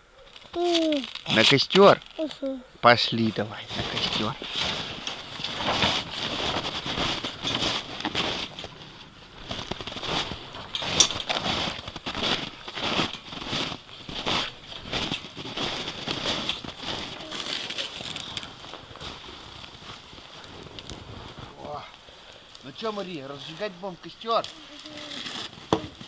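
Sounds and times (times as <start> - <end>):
footsteps walking: 3.1 - 22.0.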